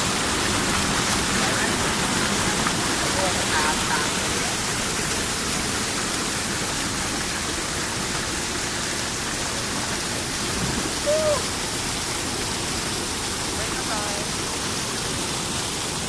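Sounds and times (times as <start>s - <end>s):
waterfall rushing: 0.0s - 16.0s
short pitched call: 11.0s - 11.5s.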